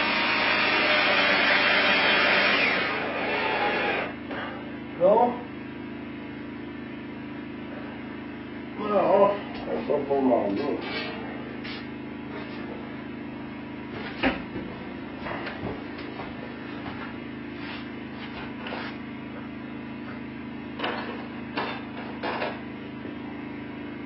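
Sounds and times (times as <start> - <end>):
steady low hum: 2.8 - 24.0.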